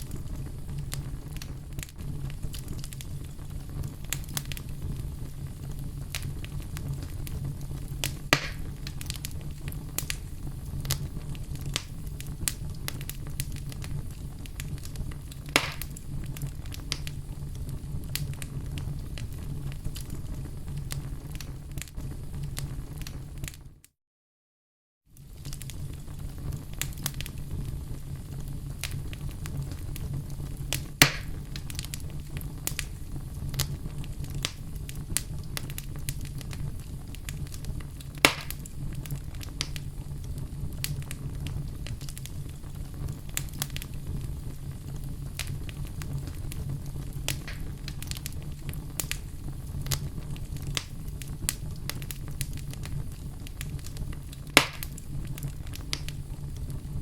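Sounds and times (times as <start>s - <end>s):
wood fire crackling: 0.0s - 23.8s, 25.1s - 57.0s
low rumble of flames: 0.0s - 23.9s, 25.1s - 57.0s
sharp loud pops: 8.3s - 8.7s, 15.6s - 15.9s, 31.0s - 31.4s, 38.3s - 38.6s, 54.6s - 54.9s.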